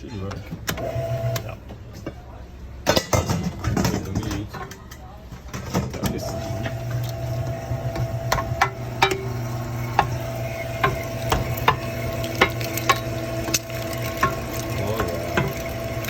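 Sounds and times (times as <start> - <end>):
meat grinder humming: 6.2 - 16.0.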